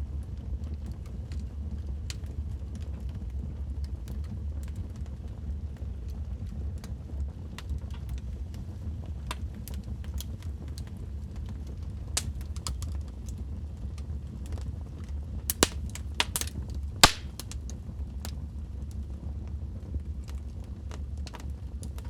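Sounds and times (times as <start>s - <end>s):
wood fire crackling: 7.5s - 13.8s, 15.4s - 17.8s, 20.2s - 22.0s.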